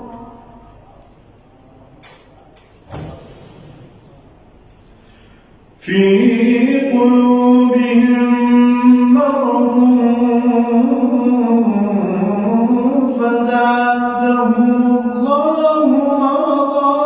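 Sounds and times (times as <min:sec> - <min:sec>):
man chanting recitation: 0:05.8 - 0:17.0.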